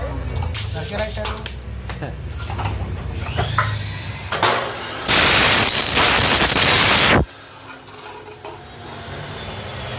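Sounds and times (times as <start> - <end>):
miter saw cutting metal: 3.3 - 7.4.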